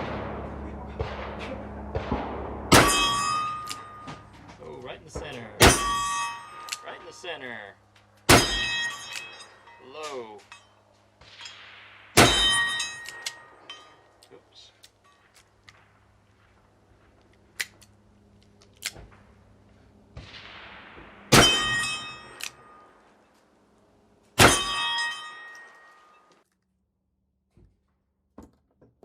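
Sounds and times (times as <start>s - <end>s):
steel target plate ringing: 2.5s - 4.6s, 5.3s - 7.6s, 8.3s - 14.2s, 21.3s - 23.1s, 24.4s - 26.4s.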